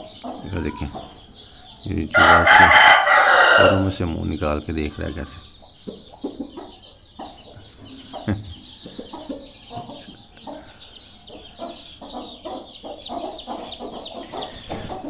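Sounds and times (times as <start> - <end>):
chicks peeping: 0.0 - 15.0
hens clucking: 0.0 - 15.0.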